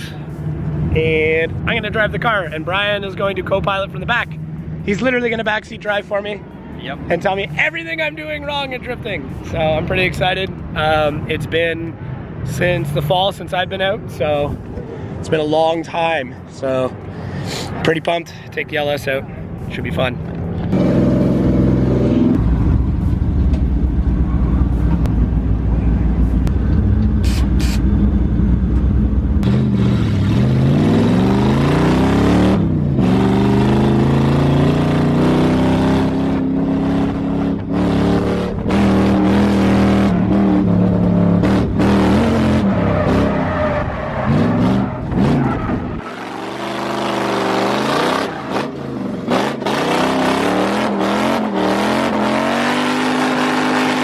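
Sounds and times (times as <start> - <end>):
car engine revving: 19.6 - 54.0.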